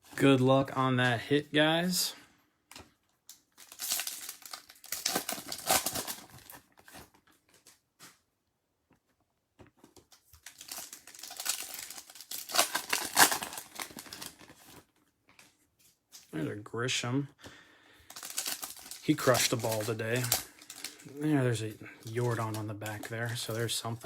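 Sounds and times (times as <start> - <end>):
card pack wrappers crinkling: 2.7 - 7.8, 10.0 - 16.3, 18.1 - 24.0.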